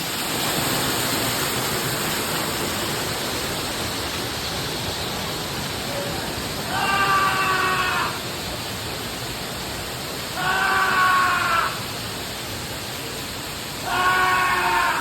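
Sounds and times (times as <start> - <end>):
rush of falling water: 0.0 - 15.0
person screaming: 6.7 - 8.2, 10.4 - 11.8, 13.8 - 15.0.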